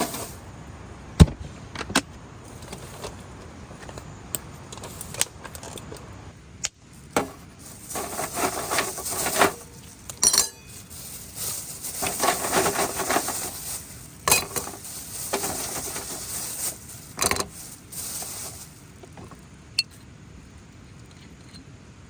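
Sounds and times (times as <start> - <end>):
cookware scraping and rubbing: 0.0 - 0.4, 7.2 - 18.8.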